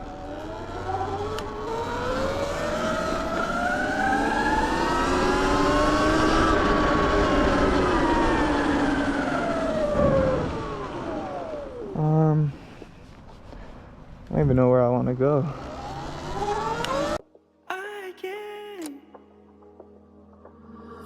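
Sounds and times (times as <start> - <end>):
low rushing noise: 0.0 - 12.2
electric motorbike motor whining: 0.0 - 12.4, 14.4 - 17.2.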